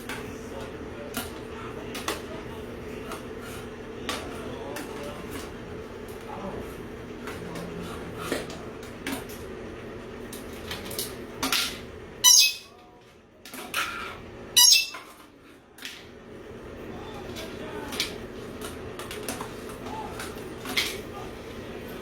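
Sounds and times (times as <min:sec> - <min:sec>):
bird chirps and squeaks: 0:12.2 - 0:12.7, 0:14.6 - 0:15.1
bird squawking: 0:12.2 - 0:12.7, 0:14.6 - 0:15.1.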